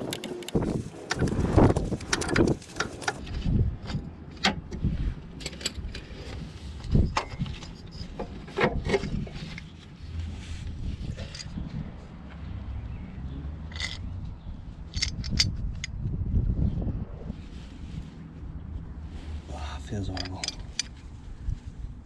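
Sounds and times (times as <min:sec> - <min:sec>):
hand tools clinking on metal: 0:20.1 - 0:20.9.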